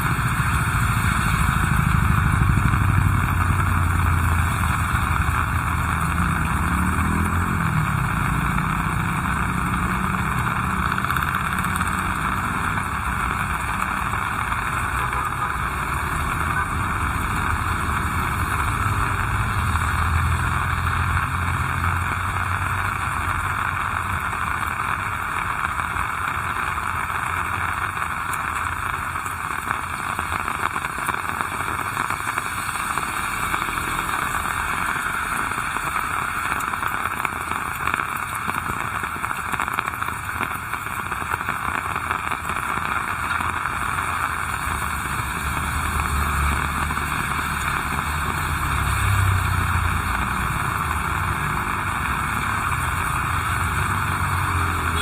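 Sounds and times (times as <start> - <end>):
heavy rain falling: 0.0 - 55.0
vehicle engine rumbling: 0.0 - 55.0.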